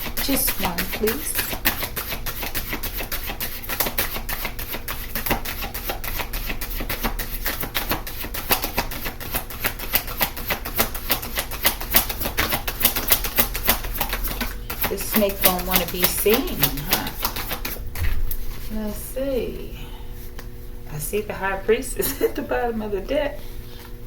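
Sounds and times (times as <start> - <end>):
cards being shuffled by hand: 0.0 - 18.8.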